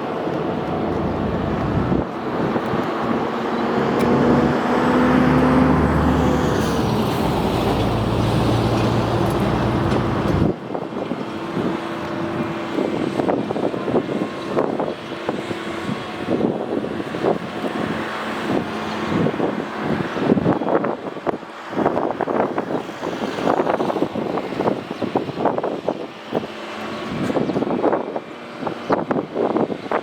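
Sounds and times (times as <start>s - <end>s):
electric truck drive hum: 0.0s - 6.6s
rushing noise: 0.0s - 10.6s.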